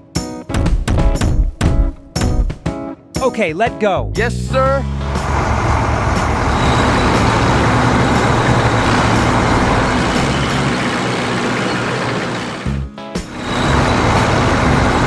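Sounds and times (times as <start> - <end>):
heavy vehicle engine rumble: 4.8 - 15.0
road noise: 4.9 - 15.0.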